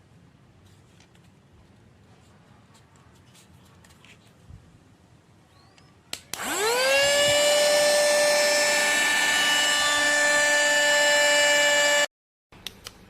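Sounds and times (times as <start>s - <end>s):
handheld vacuum motor whine: 6.4s - 12.1s.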